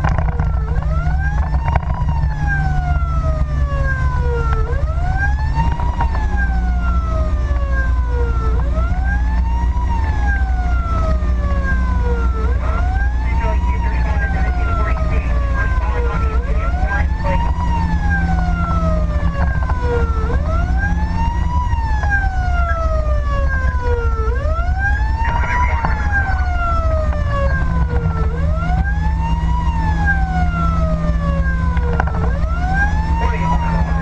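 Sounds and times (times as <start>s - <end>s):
fire engine siren wailing: 0.0s - 34.0s
truck engine and road rumble: 0.0s - 34.0s.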